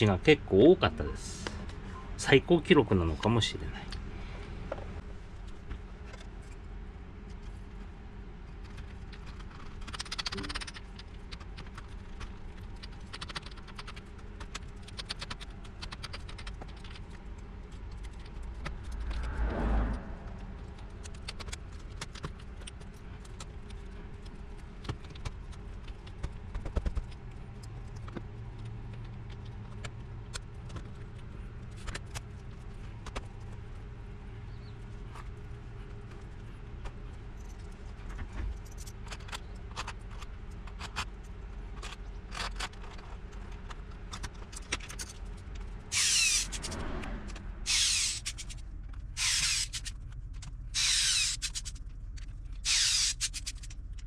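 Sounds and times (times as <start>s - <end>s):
low hum: 0.0s - 50.9s
small parts clicking and clinking: 8.6s - 19.1s, 36.1s - 54.0s.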